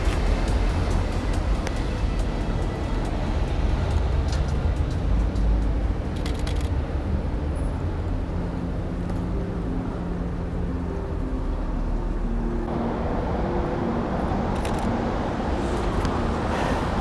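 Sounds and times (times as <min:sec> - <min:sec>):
traffic hiss: 0:00.0 - 0:08.5, 0:12.7 - 0:17.0
road traffic rumble: 0:00.0 - 0:17.0.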